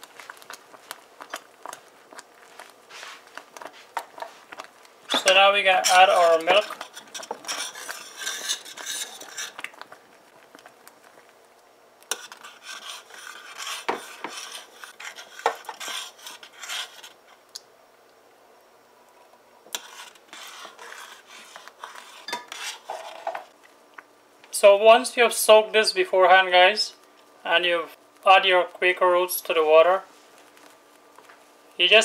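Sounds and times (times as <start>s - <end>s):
spoon stirring in a pot: 0.0s - 11.4s, 12.0s - 17.4s, 19.6s - 24.1s.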